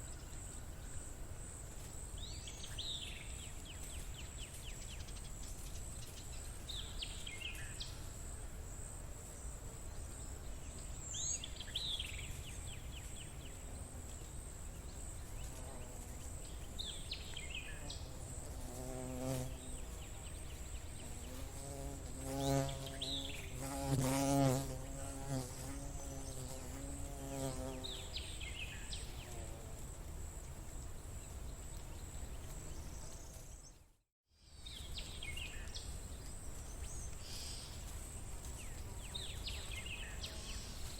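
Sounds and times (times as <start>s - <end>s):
insect buzzing past: 2.8s - 33.8s, 34.6s - 40.9s.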